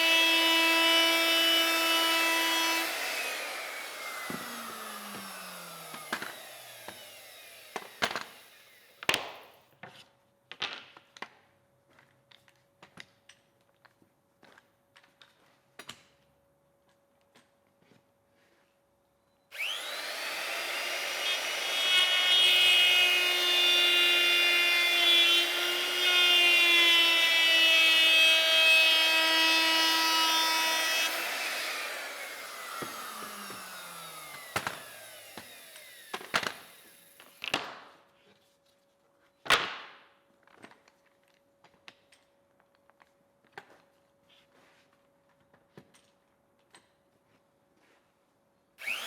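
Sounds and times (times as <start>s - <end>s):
router cutting wood: 0.0s - 9.3s, 19.5s - 37.6s, 48.8s - 49.0s.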